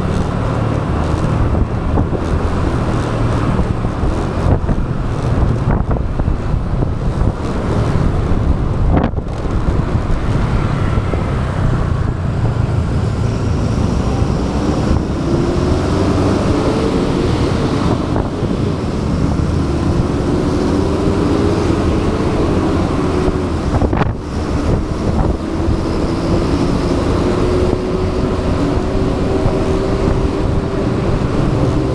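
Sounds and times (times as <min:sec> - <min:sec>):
faint engine whine: 0:00.0 - 0:31.9
motorbike engine: 0:00.0 - 0:31.9
road noise: 0:00.0 - 0:31.9
wind rumble on microphone: 0:00.0 - 0:31.9.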